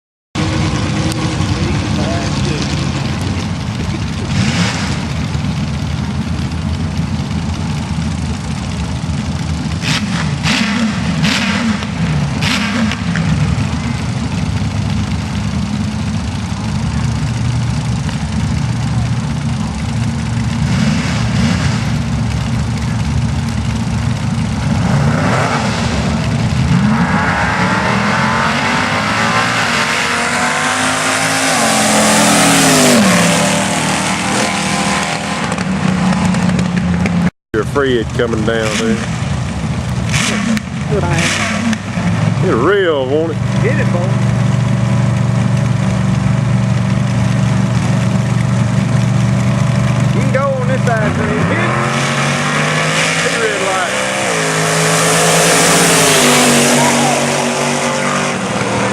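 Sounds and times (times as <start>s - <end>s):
dragster engine revving: 0.4s - 58.9s.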